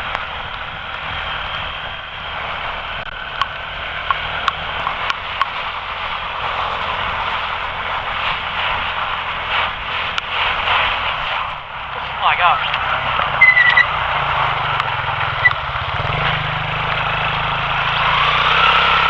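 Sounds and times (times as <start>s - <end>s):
quad bike engine running: 0.0s - 19.0s
rain and wind hiss: 0.0s - 19.0s
sharp ticks: 12.7s - 16.0s.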